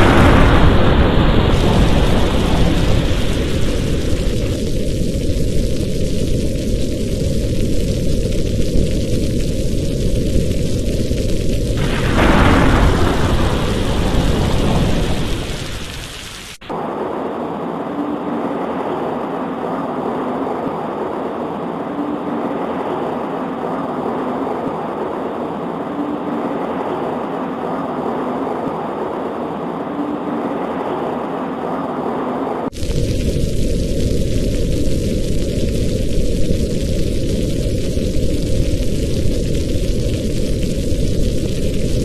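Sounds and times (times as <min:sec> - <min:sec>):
rain pattering on a window: 0:00.0 - 0:16.6, 0:32.7 - 0:42.0
thunderclap with low rumble: 0:00.0 - 0:42.0.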